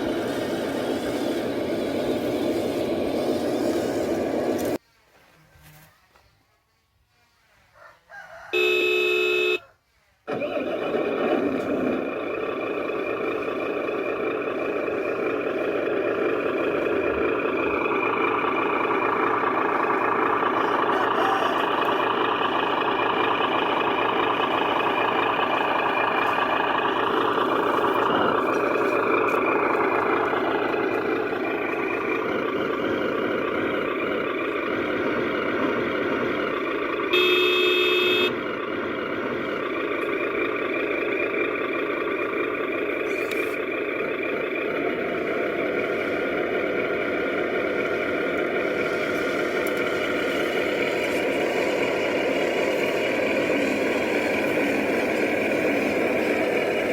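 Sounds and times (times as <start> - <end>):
toy truck horn toot: 8.4 - 9.8, 37.0 - 38.4
toy truck motor running: 10.7 - 40.9.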